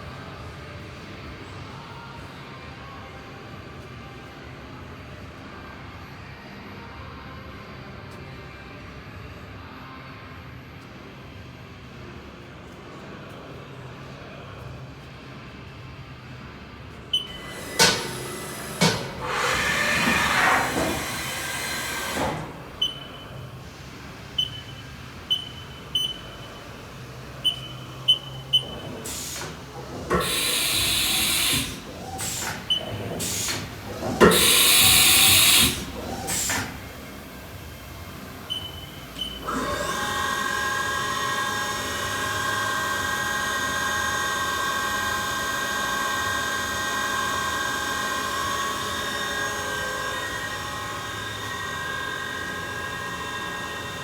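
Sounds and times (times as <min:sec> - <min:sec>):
short beeps: 0:17.2 - 0:17.5, 0:22.8 - 0:23.5, 0:24.4 - 0:26.7, 0:27.4 - 0:28.9, 0:38.5 - 0:39.4
machine spindle whine: 0:17.2 - 0:54.0
hissing bursts: 0:17.3 - 0:39.9.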